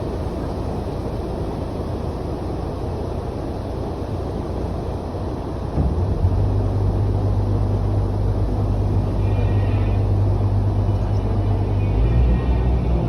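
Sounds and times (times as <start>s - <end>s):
boat engine droning: 0.0s - 13.0s
deep steady hum: 0.0s - 13.0s.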